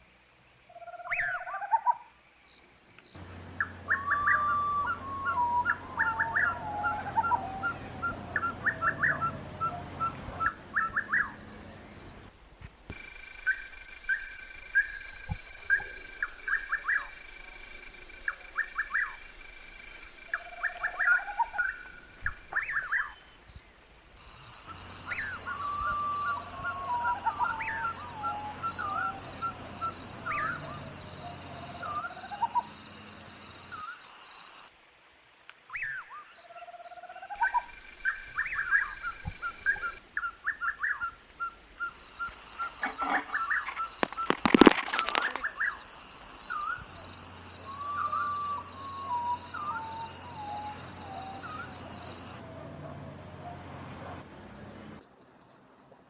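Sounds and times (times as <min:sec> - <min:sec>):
bird chirps: 0:03.2 - 0:12.3, 0:12.9 - 0:23.6, 0:37.3 - 0:41.2
bird downward-sliding whistles: 0:03.6 - 0:11.4.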